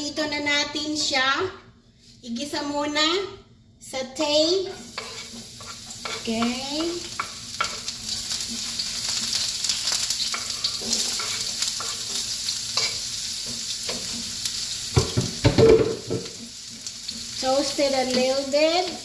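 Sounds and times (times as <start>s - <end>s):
garlic and onion sizzling in pan: 4.2s - 19.0s.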